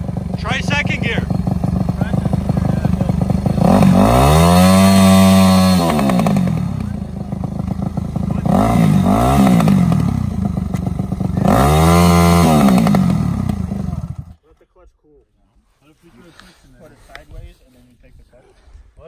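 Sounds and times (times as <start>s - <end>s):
dirt bike engine revving: 0.0s - 14.4s.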